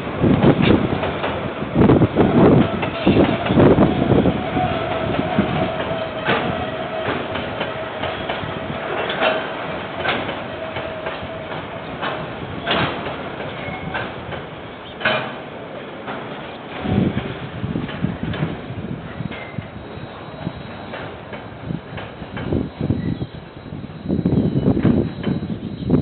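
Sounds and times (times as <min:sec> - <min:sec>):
train wheels knocking over rail joints: 0:00.0 - 0:26.0
thin steady whine: 0:18.7 - 0:26.0.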